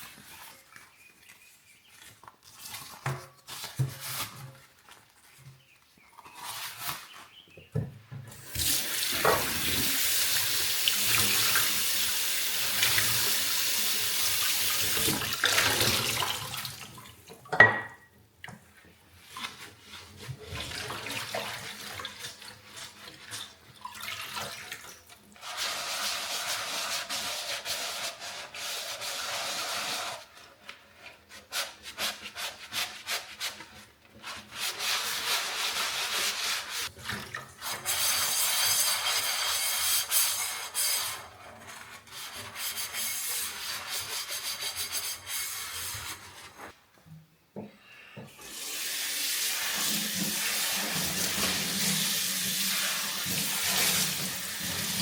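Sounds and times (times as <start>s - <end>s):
tap water running: 8.3s - 17.8s, 48.3s - 55.0s
rubbing and scrubbing: 25.4s - 46.8s, 49.6s - 55.0s.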